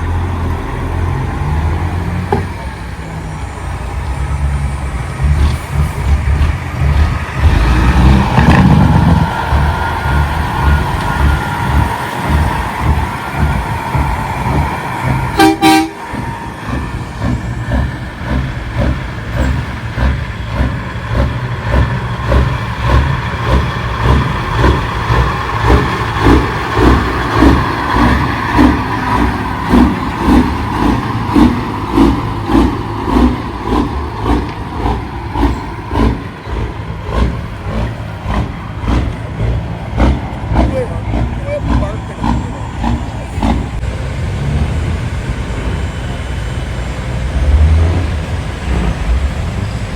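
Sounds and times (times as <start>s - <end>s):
truck diesel engines throbbing: 0.0s - 49.9s
truck horn blast: 15.1s - 16.3s.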